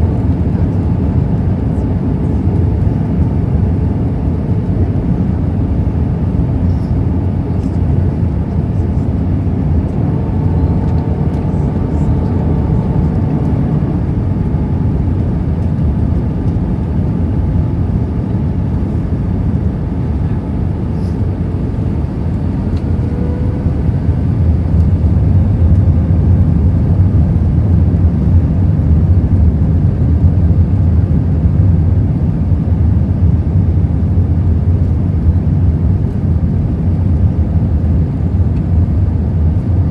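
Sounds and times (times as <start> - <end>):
faint whine: 0.0 - 28.6
aircraft cabin engine rumble: 0.0 - 39.9.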